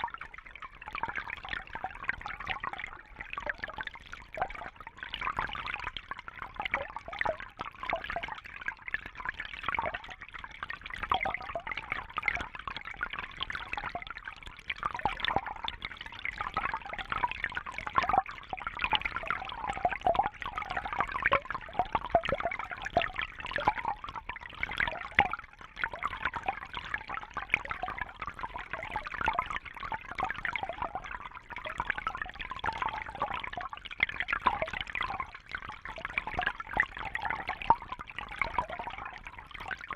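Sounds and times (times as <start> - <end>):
water trickling and bubbling: 0.0 - 39.9.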